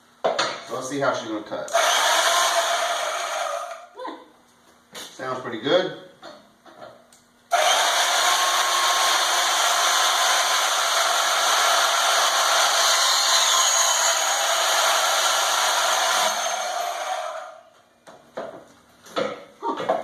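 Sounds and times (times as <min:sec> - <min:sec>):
band saw cutting metal: 0:07.5 - 0:17.6.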